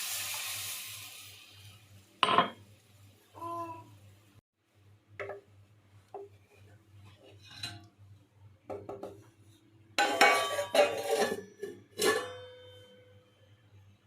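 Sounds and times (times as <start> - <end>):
dishes clinking: 2.2 - 2.6, 10.0 - 13.0
metal and crockery clattering: 10.0 - 12.7.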